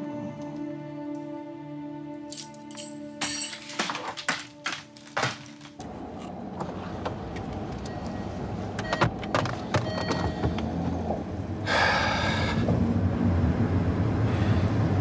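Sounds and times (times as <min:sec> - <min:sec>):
car engine starting and running: 0:05.8 - 0:15.0.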